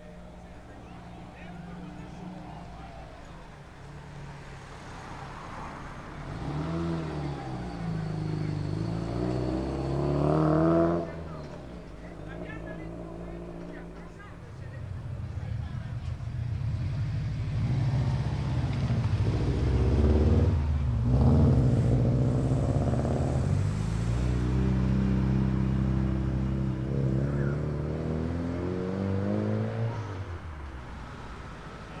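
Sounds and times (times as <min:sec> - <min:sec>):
car engine accelerating hard: 0:00.0 - 0:32.0.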